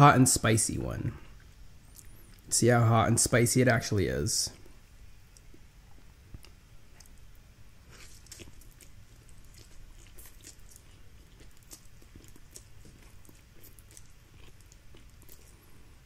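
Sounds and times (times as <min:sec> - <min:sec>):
person chewing noodles: 0:04.6 - 0:16.0.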